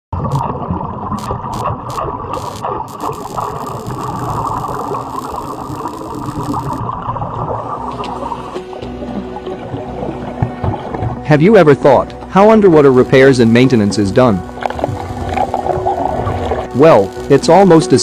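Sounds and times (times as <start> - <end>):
welding arc crackling: 0.2 - 0.5, 1.2 - 6.8, 12.8 - 18.0
sharp clicks: 1.2 - 6.8, 12.9 - 18.0.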